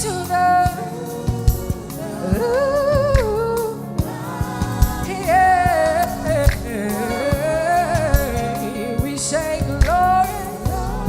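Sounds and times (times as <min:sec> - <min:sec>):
gospel band playing: 0:00.0 - 0:11.0
singers holding long notes: 0:00.0 - 0:11.0
steady drum hits: 0:03.0 - 0:08.6.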